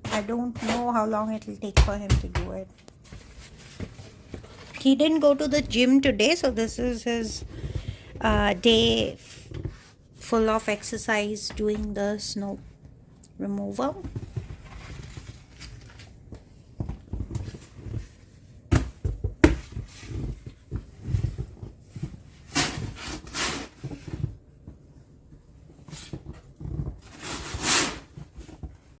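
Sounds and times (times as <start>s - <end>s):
shovel scraping snow: 27.1s - 28.2s.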